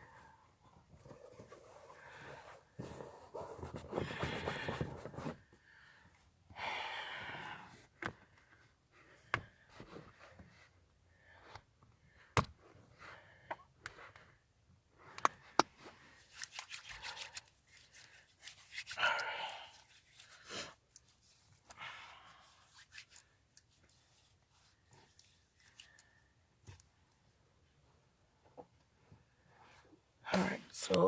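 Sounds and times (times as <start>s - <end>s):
handling rustling: 15.5s - 21.8s.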